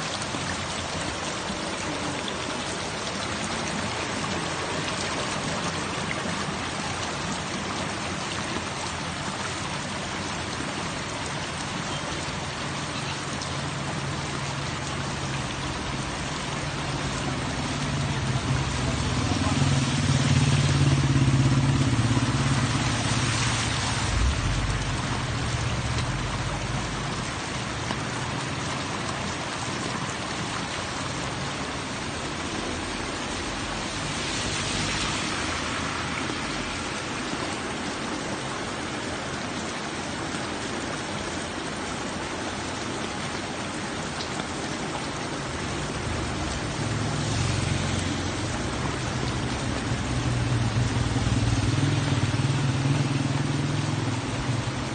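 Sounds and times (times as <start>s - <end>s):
steady rain falling: 0.0s - 54.9s
vehicle engine rumbling past: 17.5s - 28.3s.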